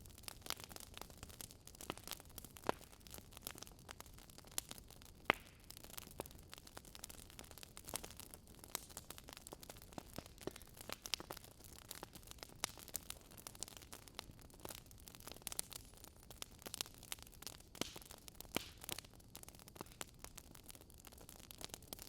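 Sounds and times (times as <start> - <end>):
campfire wood crackling: 0.0 - 22.0
sharp fire pops: 5.2 - 5.6, 17.8 - 18.9.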